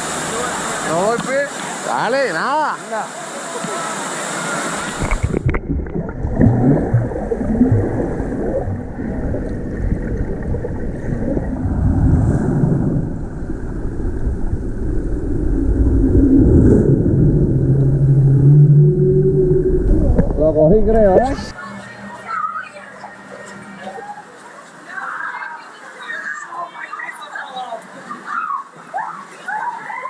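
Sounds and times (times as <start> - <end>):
water rumbling: 4.4 - 21.6
wind buffeting microphone: 4.9 - 21.4.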